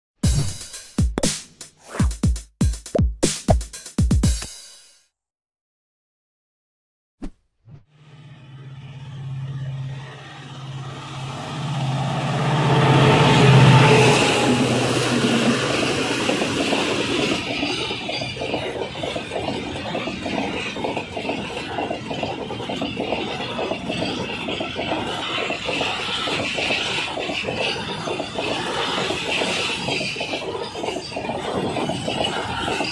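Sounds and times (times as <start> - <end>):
diesel locomotive engine drone: 8.0 - 32.9
train wheels clattering on rails: 13.3 - 32.9.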